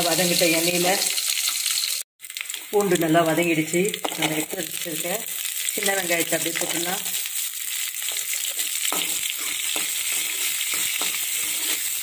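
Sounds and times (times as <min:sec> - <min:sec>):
food sizzling in hot oil: 0:00.0 - 0:12.0
metal ladle scraping a pan: 0:08.1 - 0:12.0.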